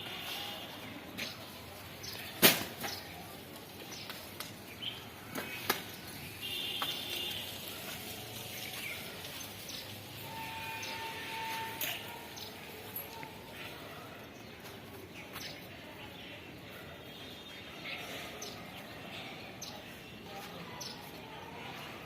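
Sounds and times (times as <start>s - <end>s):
outdoor background noise: 0.0s - 22.0s
sharp crack: 2.4s - 3.0s.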